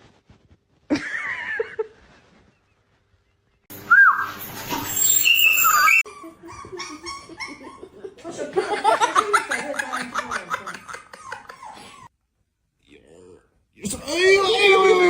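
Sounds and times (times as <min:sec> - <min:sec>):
pet whining cries: 0:03.9 - 0:07.5.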